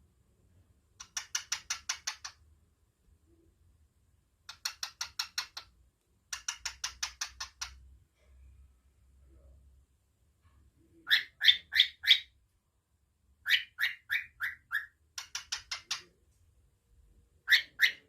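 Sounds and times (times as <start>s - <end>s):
cockatiel clicking: 1.0s - 2.4s, 4.4s - 5.7s, 6.3s - 7.9s, 15.1s - 16.1s.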